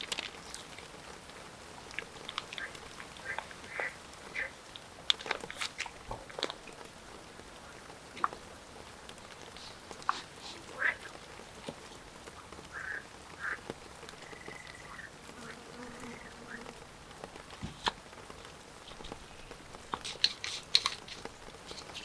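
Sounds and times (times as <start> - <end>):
frogs croaking: 1.8 - 17.1.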